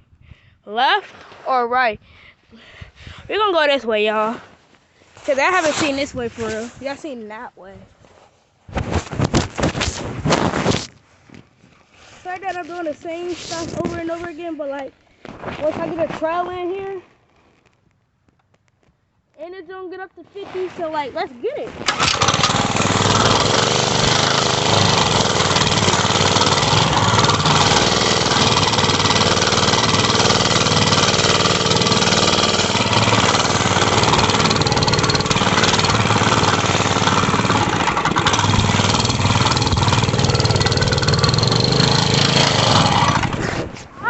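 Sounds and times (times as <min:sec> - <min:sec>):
mini bike engine running: 0:21.8 - 0:43.4.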